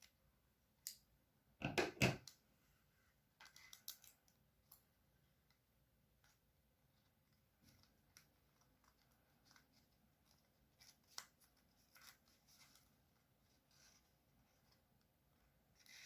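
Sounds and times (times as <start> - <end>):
paper rustling and crinkling: 7.2 - 14.8.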